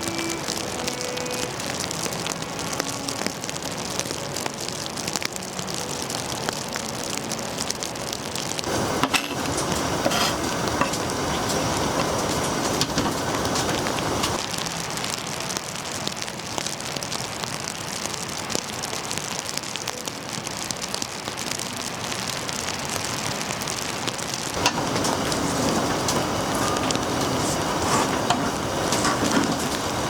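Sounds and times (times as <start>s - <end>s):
rain pattering: 0.0s - 30.0s.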